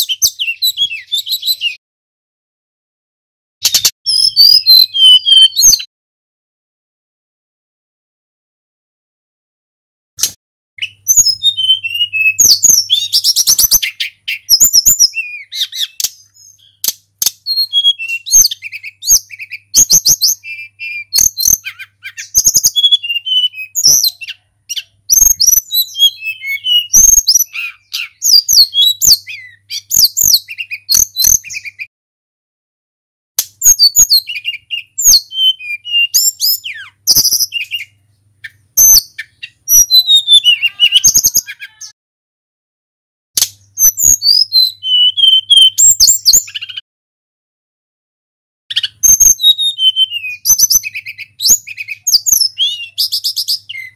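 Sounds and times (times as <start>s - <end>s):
bird whistling and chirping: 0.0s - 1.8s, 3.6s - 5.9s, 10.8s - 31.9s, 33.6s - 42.0s, 43.6s - 46.8s, 48.7s - 53.9s.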